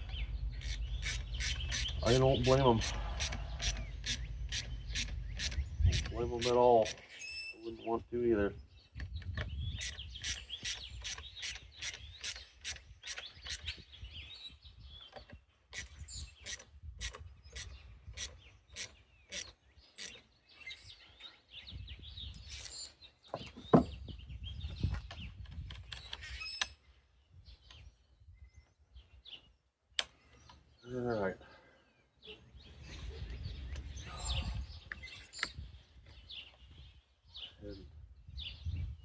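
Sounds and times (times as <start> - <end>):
sharp evenly spaced clicks: 0.6 - 7.1.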